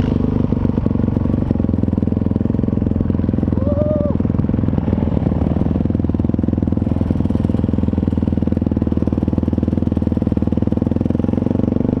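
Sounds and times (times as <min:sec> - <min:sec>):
motocross bike engine running: 0:00.0 - 0:12.0.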